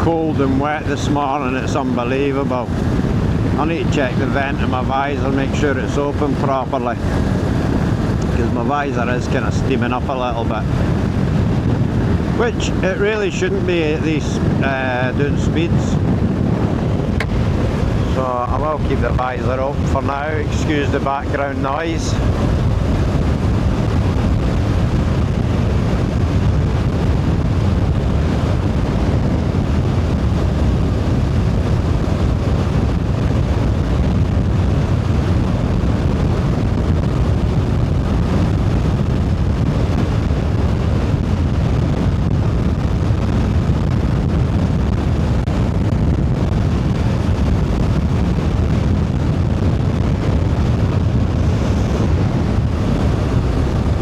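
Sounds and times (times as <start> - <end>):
road noise: 0.0 - 27.3, 43.7 - 54.0
wind rushing on microphone: 0.0 - 54.0.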